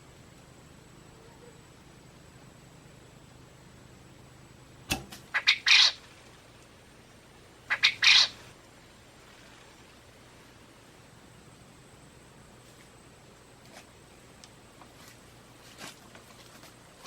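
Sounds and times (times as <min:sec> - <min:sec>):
bird squawking: 0:05.3 - 0:06.2, 0:07.6 - 0:08.5.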